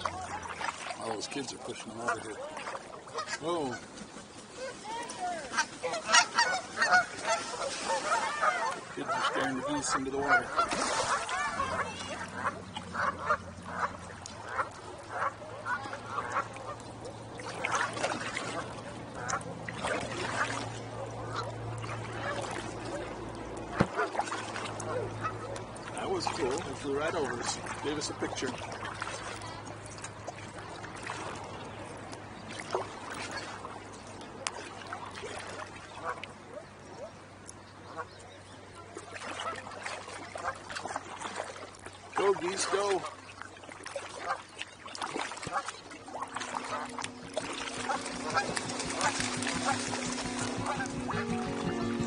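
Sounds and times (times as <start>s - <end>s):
water trickling around a kayak: 0.0s - 52.0s
geese honking: 5.5s - 16.9s, 45.4s - 52.0s.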